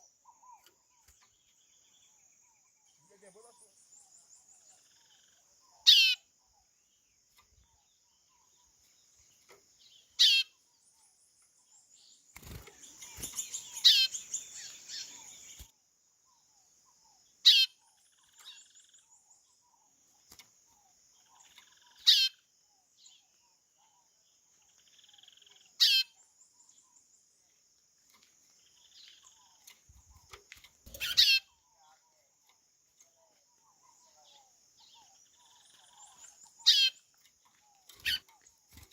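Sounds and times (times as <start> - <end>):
insect trill: 0.0 - 8.6, 9.8 - 38.9.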